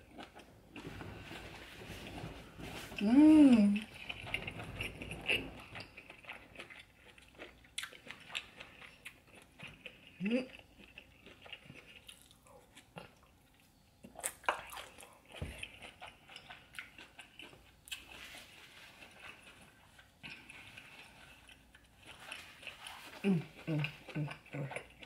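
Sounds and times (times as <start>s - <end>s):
wet chewing and lip smacking: 3.8s - 18.3s.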